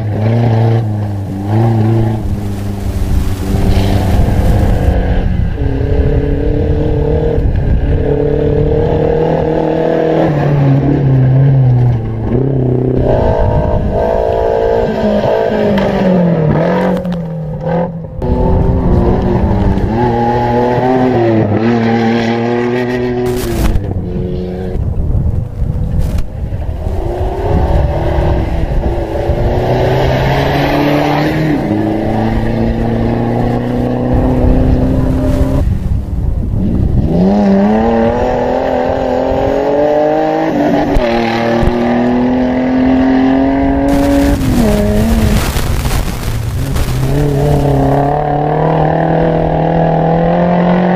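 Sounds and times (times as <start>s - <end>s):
engine revving hard: 41.2s - 50.9s.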